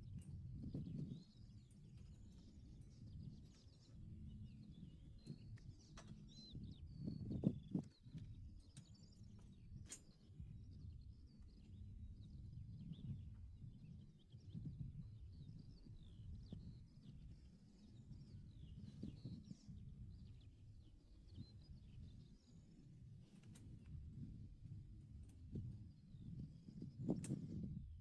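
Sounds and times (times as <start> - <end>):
small birds chirping: 0.8 - 22.8.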